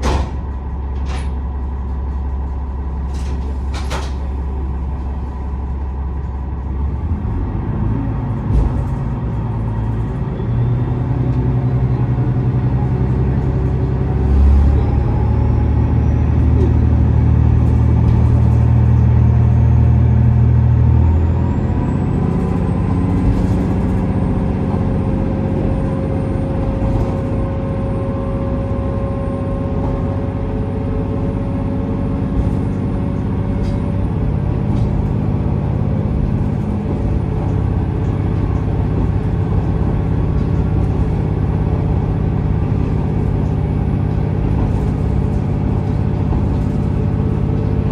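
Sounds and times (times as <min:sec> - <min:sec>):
train wheels on rails: 0:00.0 - 0:05.3, 0:21.0 - 0:47.9
diesel railcar engine drone: 0:00.0 - 0:47.9.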